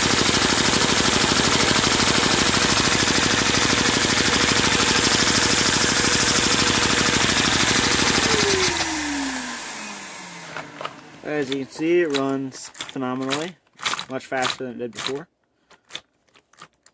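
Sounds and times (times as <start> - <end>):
toy engine piston clatter: 0.0 - 9.0, 11.4 - 16.9
vacuum cleaner whine: 0.0 - 12.2.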